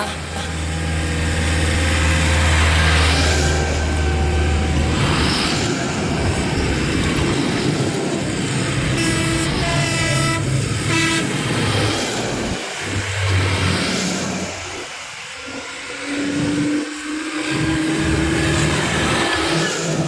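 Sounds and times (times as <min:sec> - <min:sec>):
vehicle horn: 0:00.0 - 0:01.0, 0:08.9 - 0:11.7
passing vehicle engines: 0:00.0 - 0:20.0.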